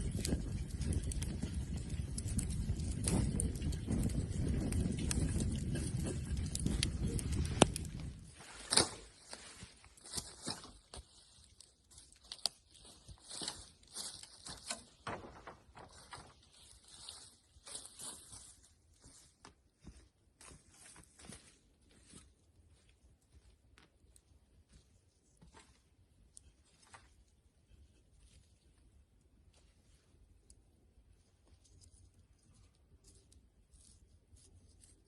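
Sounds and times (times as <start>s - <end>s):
bonfire crackling: 0.0s - 18.2s.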